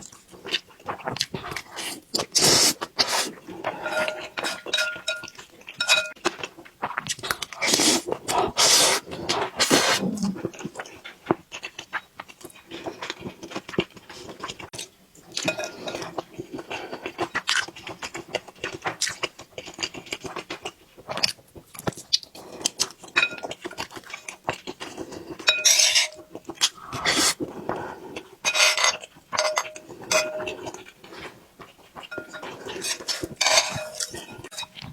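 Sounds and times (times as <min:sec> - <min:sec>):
chewing: 0:00.0 - 0:34.9
spoon scraping a bowl: 0:02.4 - 0:06.2, 0:25.2 - 0:26.3, 0:28.4 - 0:30.8, 0:32.0 - 0:34.9.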